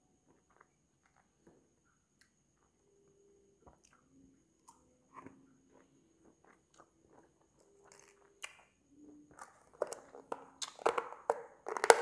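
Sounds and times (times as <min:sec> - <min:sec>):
biting and chewing mango: 0:04.7 - 0:08.7.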